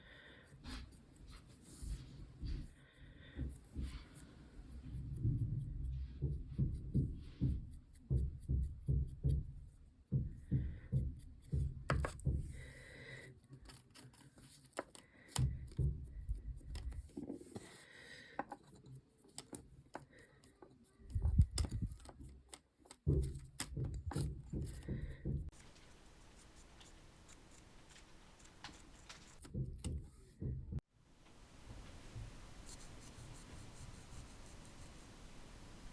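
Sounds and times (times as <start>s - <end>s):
knock on table: 10.2s - 12.5s
light clicks and taps: 18.4s - 25.6s.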